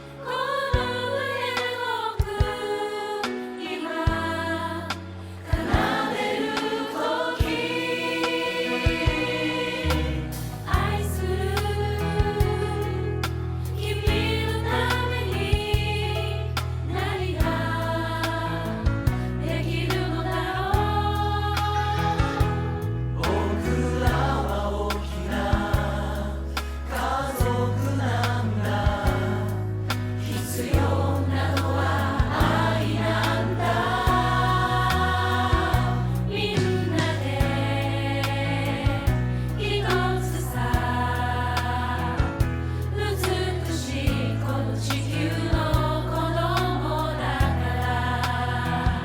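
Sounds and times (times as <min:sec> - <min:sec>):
choir-like singing: 0:00.0 - 0:49.0
sustained bass notes: 0:16.9 - 0:49.0
steady beat and bass: 0:30.7 - 0:39.3.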